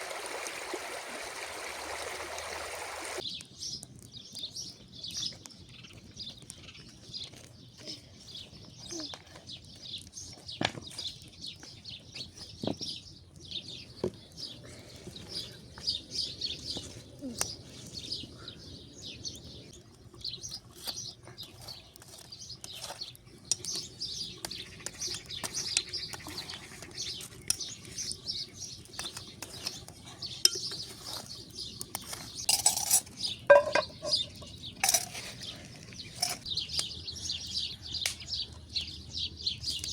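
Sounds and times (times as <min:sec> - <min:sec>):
small birds chirping: 0:01.4 - 0:39.9
utensils and dishes clinking: 0:32.4 - 0:35.3, 0:36.2 - 0:36.5.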